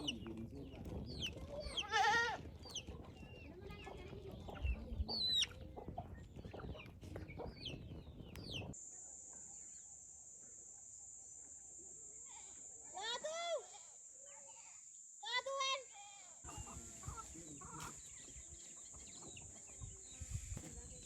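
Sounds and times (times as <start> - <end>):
chickens clucking: 0.0 - 8.8, 16.5 - 21.0
chicks peeping: 0.0 - 8.8, 16.5 - 21.0
high-pitched insect drone: 8.8 - 17.8.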